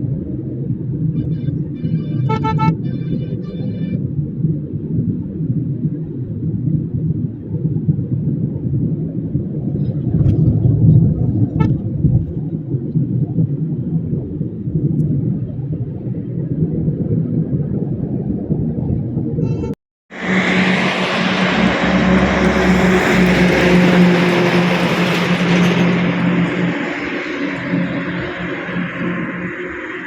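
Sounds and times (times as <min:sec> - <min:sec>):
vehicle engine and road drone: 0:00.0 - 0:15.1, 0:19.6 - 0:30.0
faint horn toot: 0:01.2 - 0:04.0.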